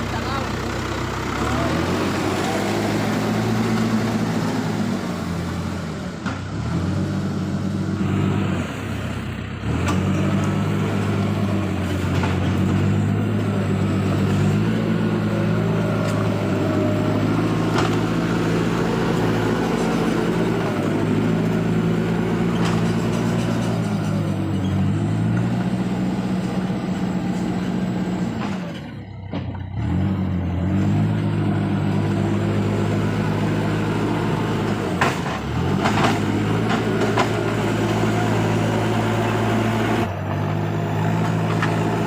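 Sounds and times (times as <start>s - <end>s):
tractor diesel engine running: 0.0s - 42.0s.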